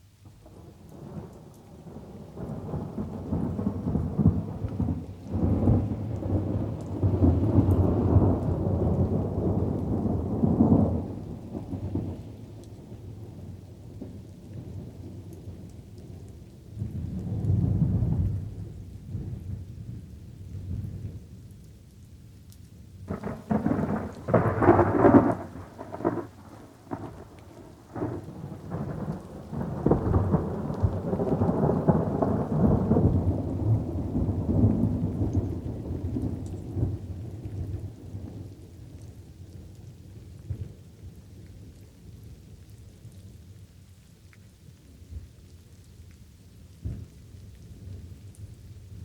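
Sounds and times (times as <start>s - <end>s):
low rumble of thunder: 0.0s - 21.7s, 22.9s - 44.0s, 46.5s - 49.0s
faint patter of rain: 0.0s - 49.0s
thunder cracks: 23.1s - 37.9s.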